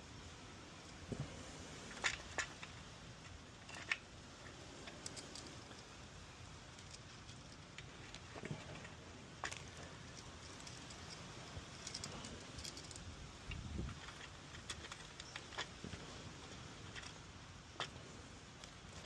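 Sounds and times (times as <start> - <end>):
plastic parts clicking and tapping: 1.9 - 4.1, 6.7 - 16.0.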